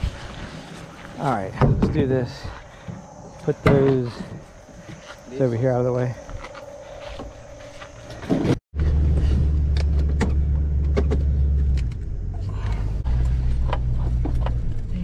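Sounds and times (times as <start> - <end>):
engine hum: 6.6 - 15.0.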